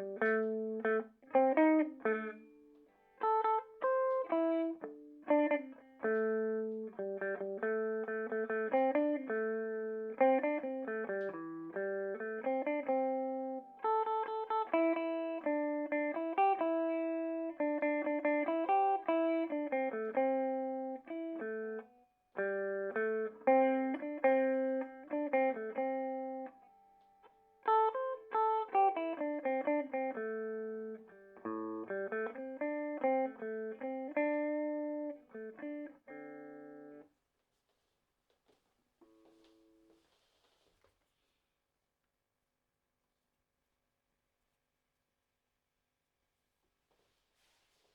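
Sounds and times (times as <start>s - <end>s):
clean electric guitar playing: 0.0s - 37.0s.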